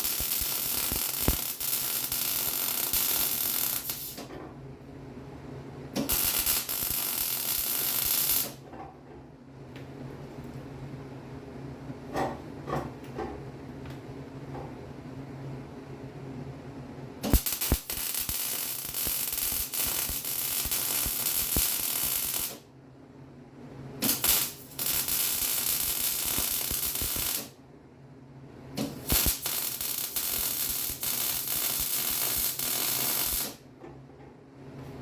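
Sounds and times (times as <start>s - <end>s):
arc welder crackling hiss: 0.0s - 4.3s, 6.0s - 8.6s, 17.2s - 22.6s, 24.0s - 27.6s, 28.8s - 33.6s.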